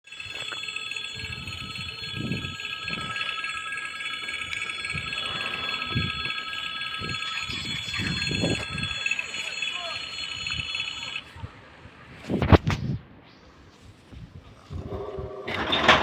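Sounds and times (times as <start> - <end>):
level crossing bell ringing: 0.0 - 11.2.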